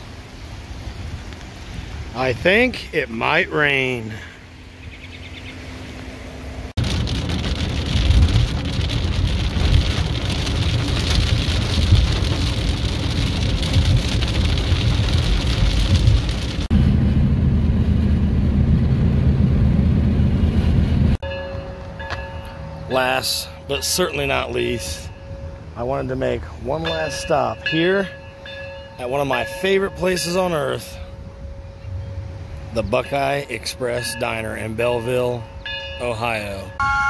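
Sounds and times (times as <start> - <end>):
vehicle rumble on road: 0.0 - 22.8
vehicle engine hum: 0.0 - 26.9.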